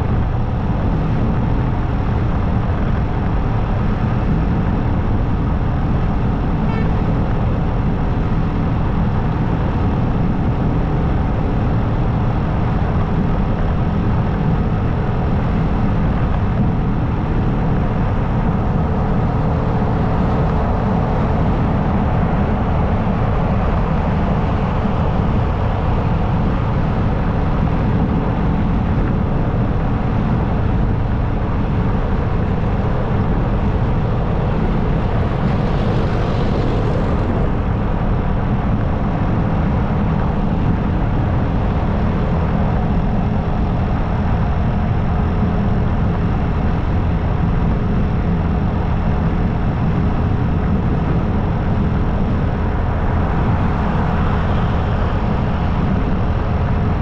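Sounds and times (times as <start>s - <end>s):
motorcycle engine drone: 0.0s - 57.0s
wind noise rushing: 0.0s - 57.0s.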